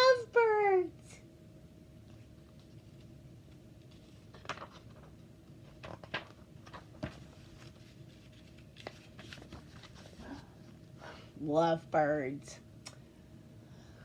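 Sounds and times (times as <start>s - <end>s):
steady low hum: 0.0s - 14.0s
book pages turning: 2.2s - 10.6s.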